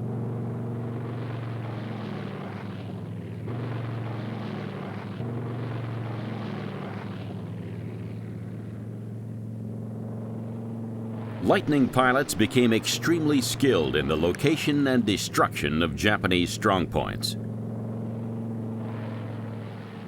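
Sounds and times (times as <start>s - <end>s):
aircraft passing rush: 0.0s - 20.0s
propeller aircraft engines droning: 0.0s - 20.0s.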